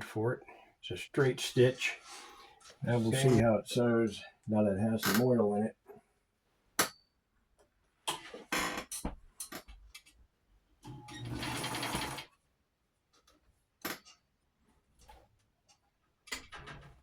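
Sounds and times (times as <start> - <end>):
sewing machine clicks and rattles: 10.9 - 12.3
sewing machine stitching: 10.9 - 12.3.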